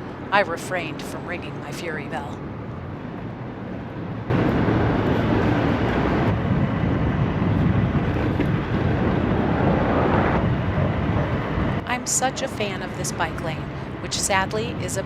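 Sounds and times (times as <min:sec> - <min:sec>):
road noise: 0:00.0 - 0:15.0
wind on microphone: 0:04.1 - 0:15.0.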